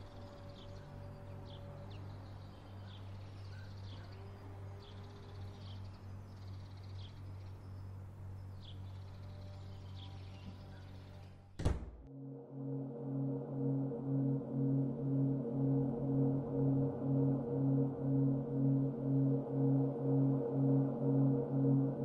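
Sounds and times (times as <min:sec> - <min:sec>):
bird chirping: 0:00.0 - 0:11.5
steady low hum: 0:12.1 - 0:22.0.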